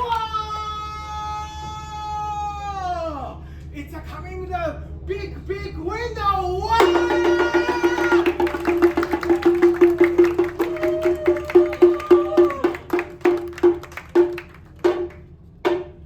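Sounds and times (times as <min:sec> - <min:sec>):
wooden percussion strikes: 0:06.8 - 0:16.0.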